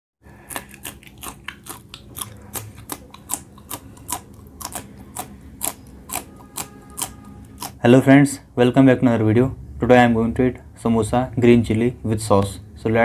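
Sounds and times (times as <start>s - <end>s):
crunching of chilli being chewed: 0.3s - 7.8s.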